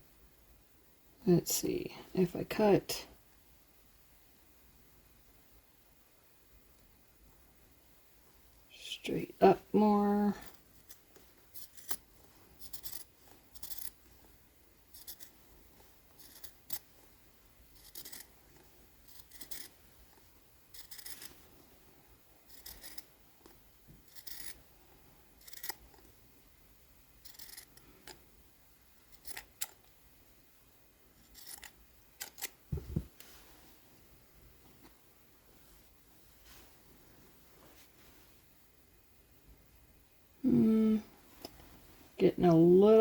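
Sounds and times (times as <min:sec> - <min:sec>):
scissors snipping fabric: 0:16.2 - 0:16.8, 0:17.8 - 0:18.3
soft low bump: 0:32.7 - 0:33.2.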